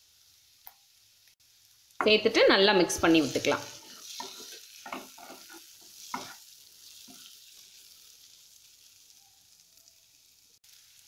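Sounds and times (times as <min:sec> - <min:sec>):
light sizzle: 0:00.0 - 0:11.0
spatula scraping a pan: 0:03.2 - 0:08.2.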